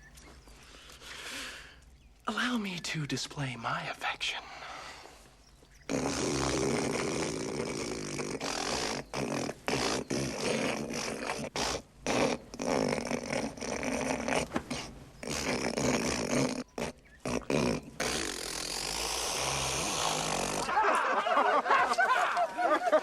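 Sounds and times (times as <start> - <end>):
man hawking up phlegm: 5.9 - 20.7.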